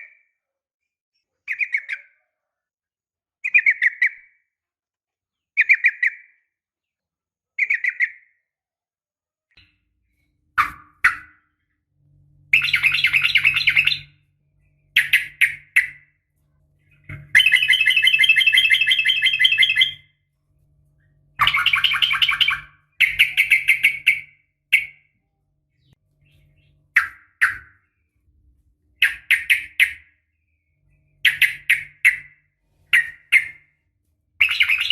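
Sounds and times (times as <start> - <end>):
bird chattering trills: 12.5 - 14.2, 14.9 - 16.1, 16.9 - 20.0, 21.4 - 25.0, 29.0 - 30.1, 31.1 - 33.7, 34.4 - 34.9.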